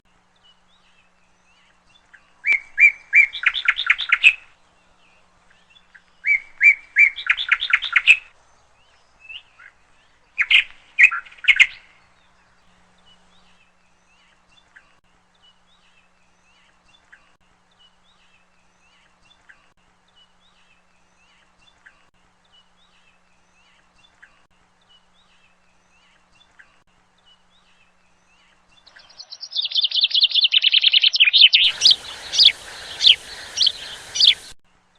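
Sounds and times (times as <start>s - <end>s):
bird singing: 0.3s - 34.6s
faint bird chirps: 13.0s - 34.6s.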